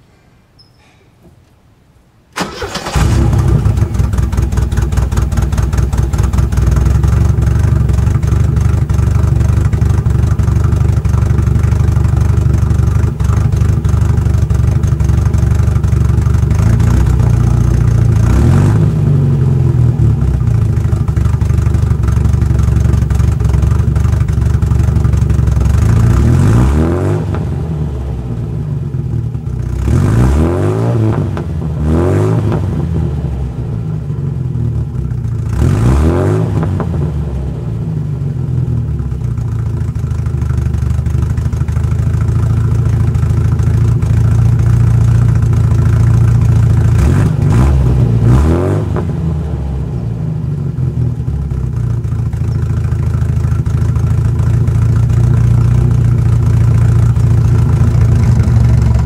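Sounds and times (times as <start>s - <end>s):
car engine starting and idling: 2.3s - 59.0s
car engine revving: 14.2s - 21.4s, 25.2s - 28.4s, 29.7s - 33.6s, 35.4s - 37.7s, 45.4s - 49.9s, 54.4s - 59.0s.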